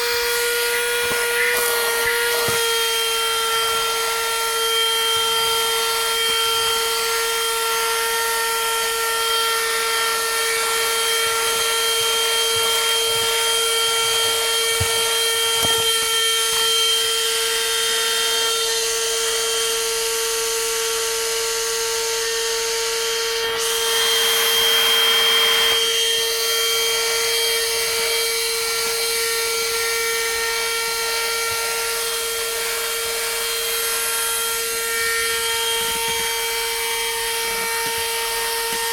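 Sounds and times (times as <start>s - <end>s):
handheld vacuum cleaner running: 0.0s - 38.9s.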